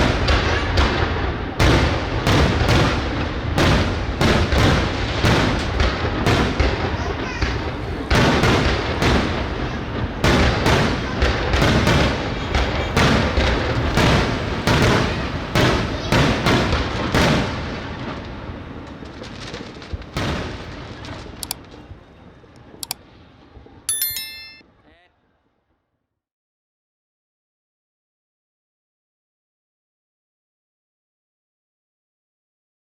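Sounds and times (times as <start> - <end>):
fireworks bursting: 0.0 - 21.6
short high pitched tone: 23.9 - 24.6.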